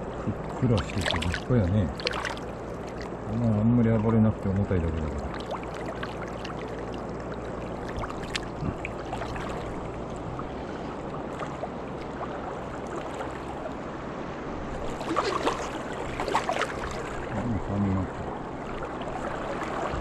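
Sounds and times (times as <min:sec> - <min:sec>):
river water rushing: 0:00.0 - 0:20.0
short splashes or knocks: 0:00.7 - 0:03.1, 0:07.8 - 0:09.9, 0:14.8 - 0:17.3.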